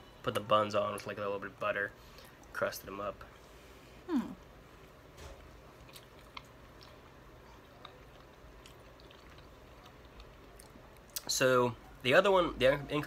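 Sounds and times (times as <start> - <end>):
faint chewing: 4.4 - 11.3.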